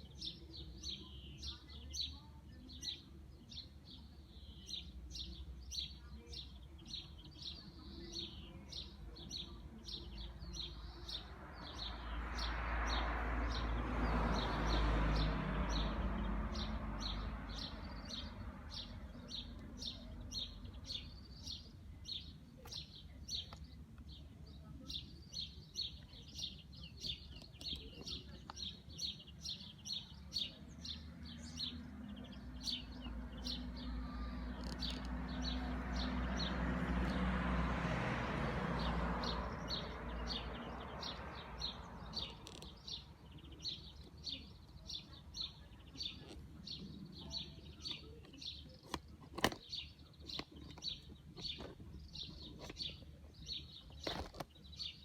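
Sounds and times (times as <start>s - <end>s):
road vehicle passing: 8.0s - 22.2s, 25.8s - 55.0s
small bird chirping: 14.3s - 37.2s, 38.8s - 55.0s.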